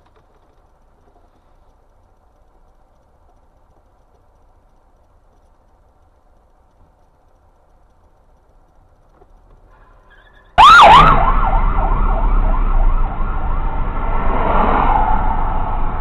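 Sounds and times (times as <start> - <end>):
road and engine noise: 0.0 - 16.0
siren warbling: 10.6 - 16.0.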